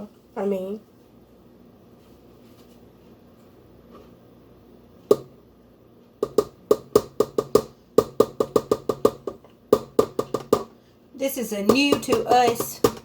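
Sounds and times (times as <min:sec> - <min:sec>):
utensil tapping a mixing bowl: 0:05.1 - 0:05.3, 0:06.2 - 0:10.8, 0:11.6 - 0:13.0.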